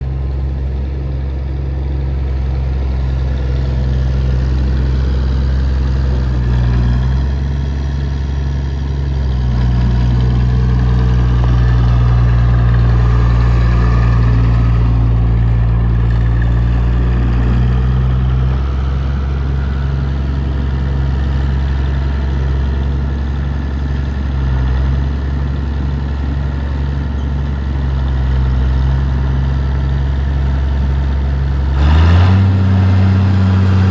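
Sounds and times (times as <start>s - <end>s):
heavy equipment engine idling: 0.0s - 31.8s, 32.4s - 33.9s.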